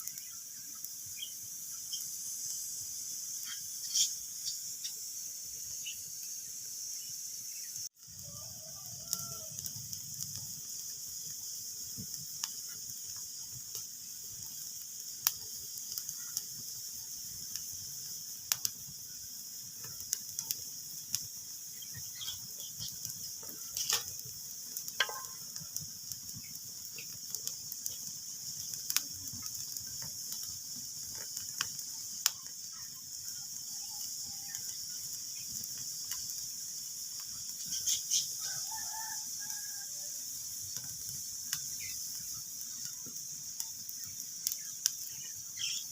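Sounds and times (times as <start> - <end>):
sharp snaps of fire: 0.0 - 7.1, 7.9 - 45.9
wood fire crackling: 0.0 - 45.9.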